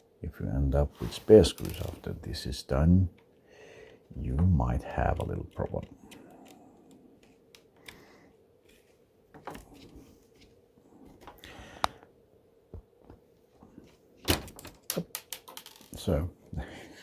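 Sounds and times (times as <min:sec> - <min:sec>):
small plastic clicks and taps: 0:14.8 - 0:15.9.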